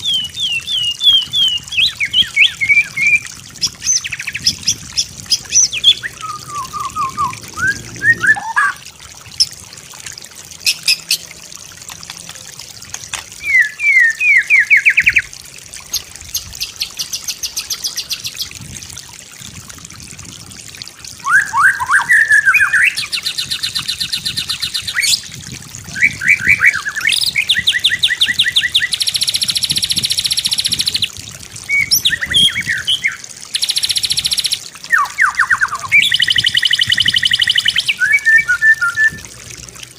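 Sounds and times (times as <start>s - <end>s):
bird singing whistles and trills: 0.0s - 8.8s, 13.4s - 15.2s, 21.2s - 25.2s, 25.9s - 31.1s, 31.7s - 39.3s.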